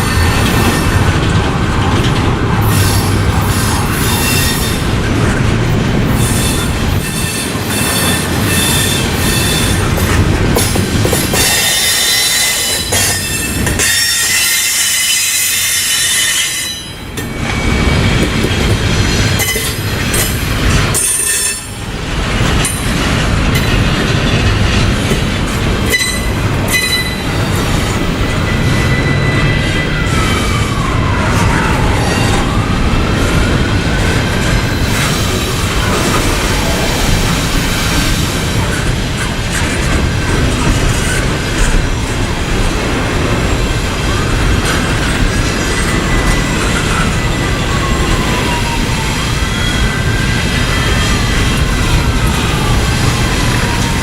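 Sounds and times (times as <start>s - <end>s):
freight train cars rumbling: 0.0s - 54.0s
train wheels squealing: 2.7s - 4.8s, 6.2s - 9.8s, 11.3s - 19.8s, 25.9s - 32.5s, 45.1s - 54.0s.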